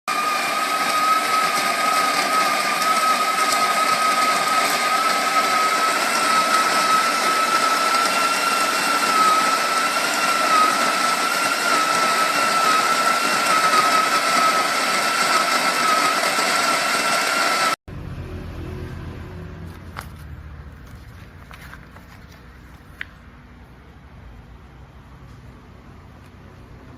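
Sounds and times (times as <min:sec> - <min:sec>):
electric coffee grinder whining: 0:00.1 - 0:17.8.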